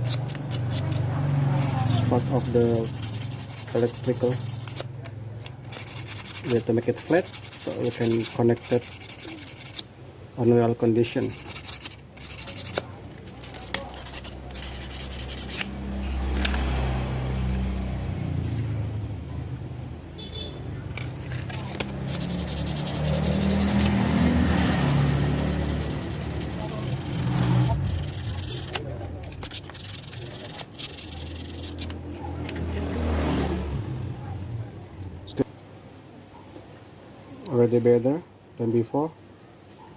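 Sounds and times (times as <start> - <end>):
sandpaper rubbing on metal contacts: 0.0 - 4.9, 5.7 - 9.8, 11.0 - 16.5, 21.0 - 32.2.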